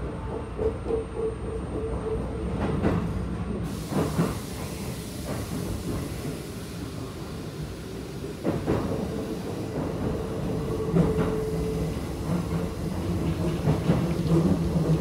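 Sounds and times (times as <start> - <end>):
train running noise: 0.0 - 15.0.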